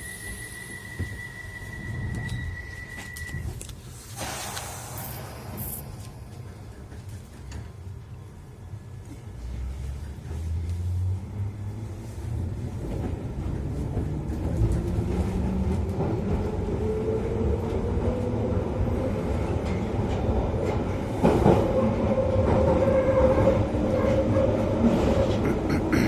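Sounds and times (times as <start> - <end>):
sharp train clatter: 0.0 - 7.8
train rumble and clatter: 0.0 - 26.0.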